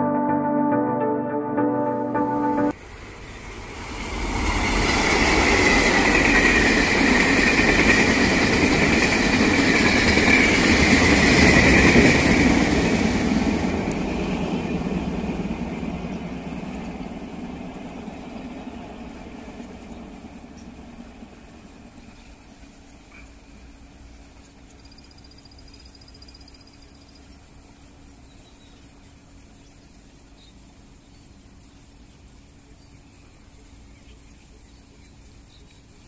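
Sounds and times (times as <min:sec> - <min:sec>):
train rumble and wheel clatter: 0:02.8 - 0:24.7.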